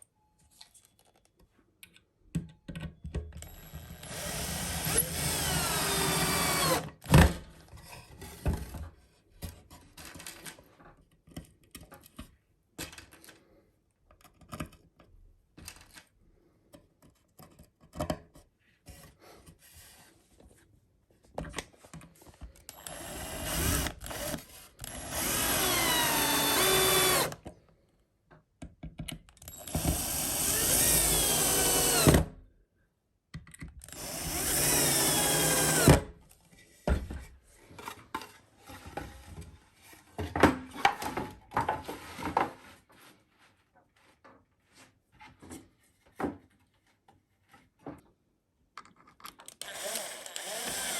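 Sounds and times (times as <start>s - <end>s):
electric drill into wood: 3.5s - 7.2s, 22.7s - 27.4s, 29.5s - 32.3s, 33.9s - 36.1s, 49.6s - 50.9s.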